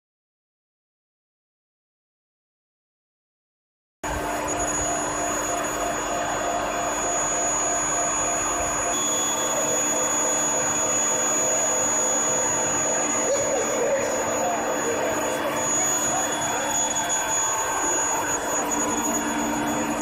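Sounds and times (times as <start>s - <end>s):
furnace high-pitched whine: 4.0s - 20.0s
lower whine: 4.0s - 20.0s.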